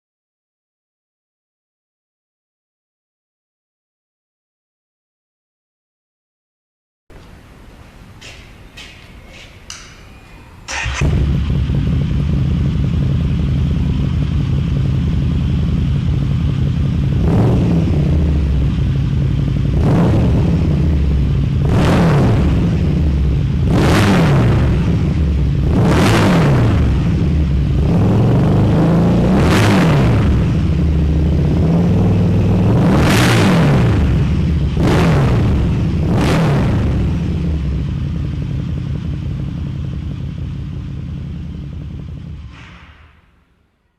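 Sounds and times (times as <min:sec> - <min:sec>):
motorcycle engine idling and revving: 0:10.7 - 0:42.6.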